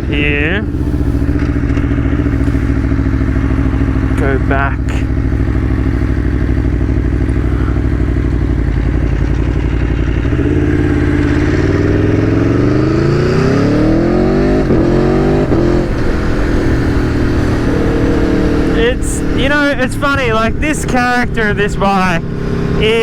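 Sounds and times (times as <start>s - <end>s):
gear upshifts: 0.0s - 7.9s
motorcycle engine accelerating: 0.0s - 23.0s.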